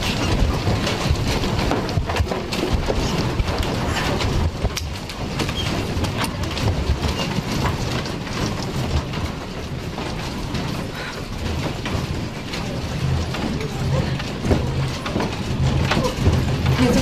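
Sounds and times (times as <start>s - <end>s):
loose objects rattling: 0.0s - 17.0s
low earthquake rumble: 0.0s - 17.0s.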